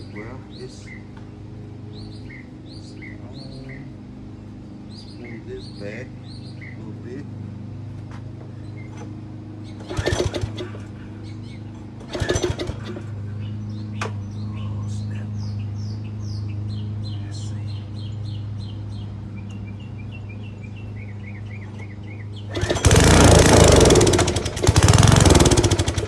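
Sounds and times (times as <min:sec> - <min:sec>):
small birds chirping: 0:00.0 - 0:26.0
steady low hum: 0:00.0 - 0:26.0
rattling clatters of handling: 0:07.9 - 0:11.0, 0:11.6 - 0:13.3.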